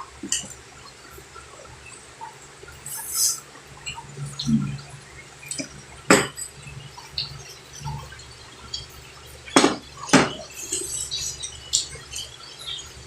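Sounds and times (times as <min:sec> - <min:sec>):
faint eating noises: 0:00.0 - 0:13.0
tableware clinking: 0:06.1 - 0:06.5.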